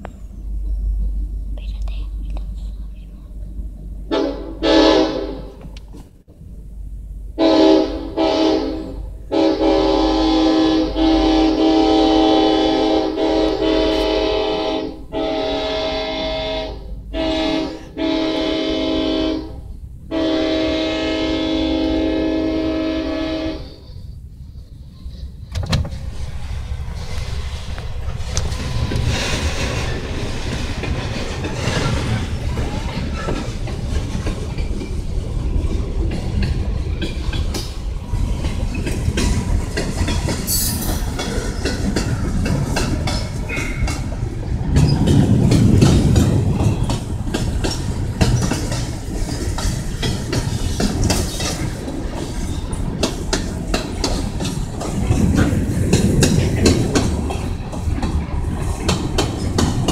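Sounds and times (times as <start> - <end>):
freight train rumble: 0.0 - 59.9
wheels clicking over rail joints: 24.6 - 59.9.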